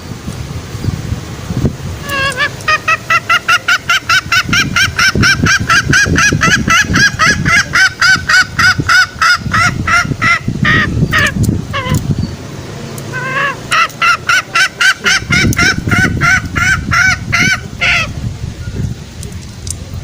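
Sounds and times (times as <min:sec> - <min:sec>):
junglefowl calling: 0:02.0 - 0:12.0, 0:13.0 - 0:18.2.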